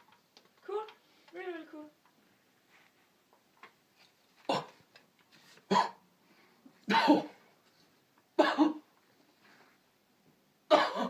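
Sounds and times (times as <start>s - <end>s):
person coughing or grunting: 4.5s - 4.8s, 5.7s - 6.0s, 6.9s - 7.4s, 8.4s - 8.8s, 10.7s - 11.0s.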